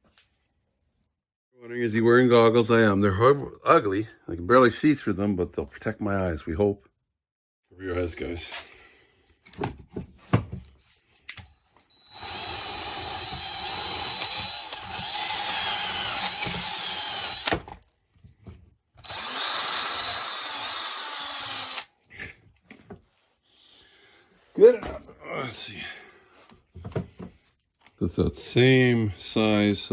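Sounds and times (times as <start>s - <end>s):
handheld power tool running: 11.9s - 17.7s, 19.0s - 21.9s.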